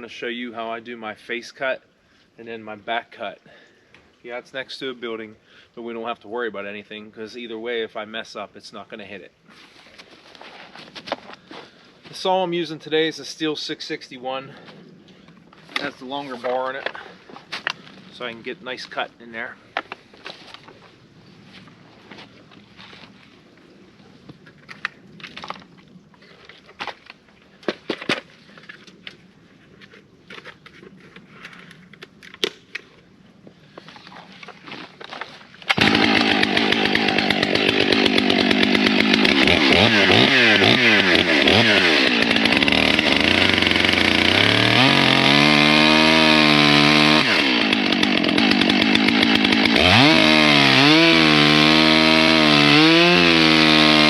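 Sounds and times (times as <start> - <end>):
chainsaw cutting wood at high revs: 35.7 - 54.0.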